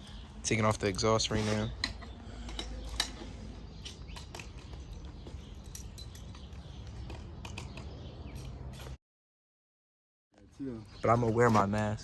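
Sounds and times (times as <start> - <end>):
tools and metal parts clicking: 0.8 - 9.0.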